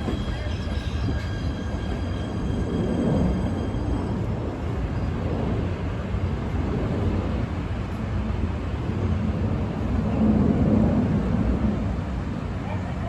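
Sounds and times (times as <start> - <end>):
high wheel squeal: 0.0 - 5.2
train rumbling past: 0.0 - 13.0.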